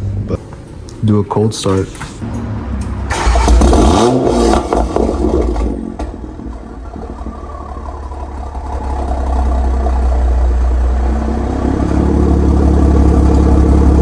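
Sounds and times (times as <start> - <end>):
car engine idling: 2.6 - 14.0.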